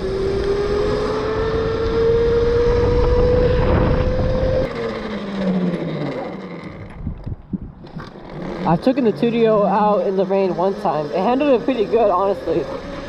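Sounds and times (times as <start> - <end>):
wind noise: 0.0 - 4.7, 6.7 - 8.9
electric motor whining: 0.0 - 13.0.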